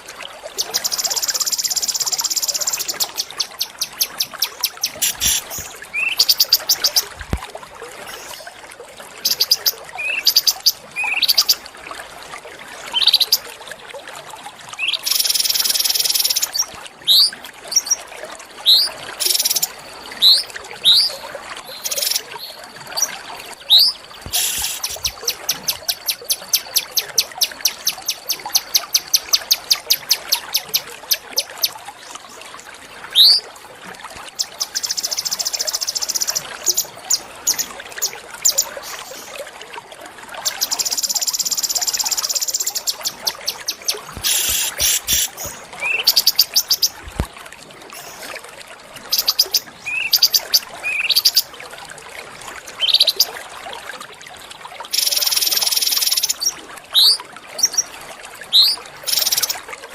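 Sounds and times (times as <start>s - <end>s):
fast buzzy bird trill: 41.8s - 46.8s.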